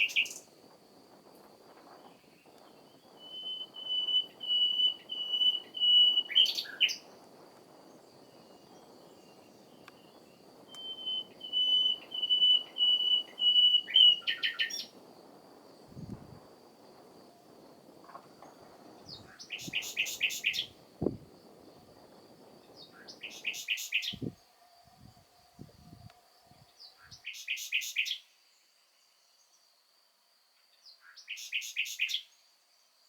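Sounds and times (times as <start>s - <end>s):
nightingale singing: 0.0s - 0.5s, 2.0s - 7.1s, 7.8s - 15.0s, 19.1s - 21.2s, 22.6s - 24.4s, 25.9s - 28.3s, 30.9s - 32.4s.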